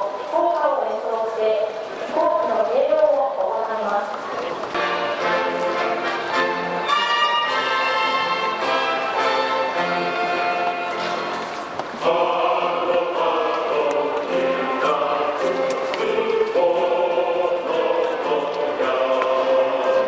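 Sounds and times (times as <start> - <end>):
instrumental accompaniment: 4.8 - 16.8
choir singing held notes: 4.8 - 20.0.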